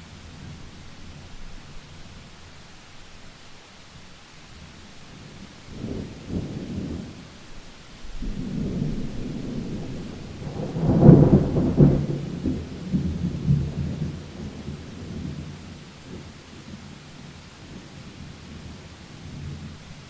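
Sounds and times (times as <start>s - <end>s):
steady rain: 0.0s - 20.0s
thunder rumble: 8.1s - 16.8s.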